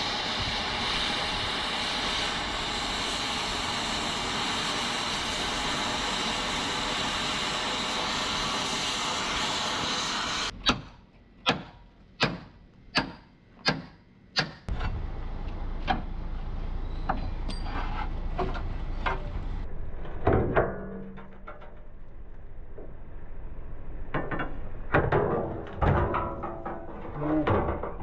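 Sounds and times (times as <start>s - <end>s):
loud steady hiss: 0.0s - 10.5s.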